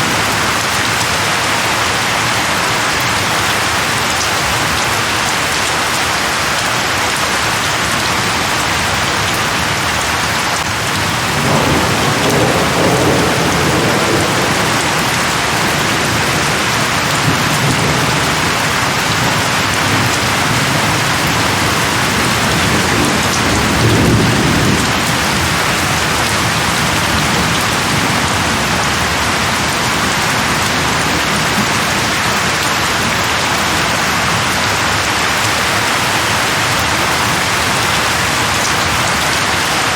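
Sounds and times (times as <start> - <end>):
heavy rain: 0.0 - 39.9
rolling thunder: 10.8 - 32.6.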